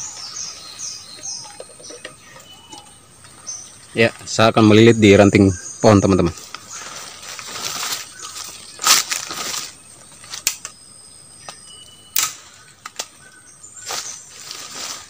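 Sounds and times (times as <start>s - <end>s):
high insect drone: 0.0s - 15.0s
rustling handling noise: 6.4s - 10.6s.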